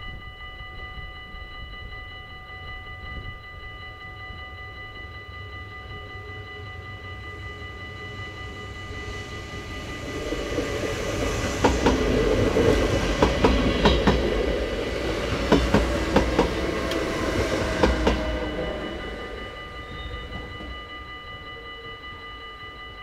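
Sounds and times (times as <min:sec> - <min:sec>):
crossing warning bell ringing: 0:00.0 - 0:23.0
electric train passing: 0:00.0 - 0:23.0
train wheels clicking over rail joints: 0:08.4 - 0:20.8.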